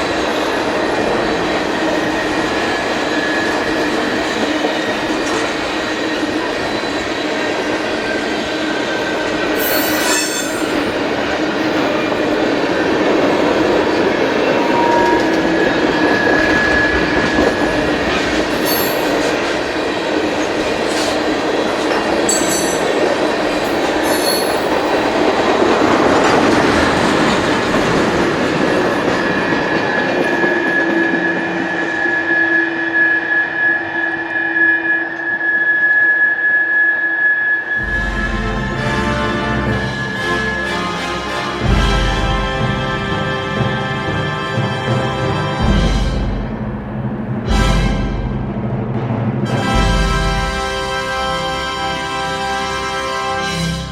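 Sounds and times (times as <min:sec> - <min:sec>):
freight cars rumbling on rails: 0:00.0 - 0:32.4, 0:37.8 - 0:53.9
high-pitched wheel squeal: 0:09.5 - 0:11.0, 0:14.4 - 0:19.4.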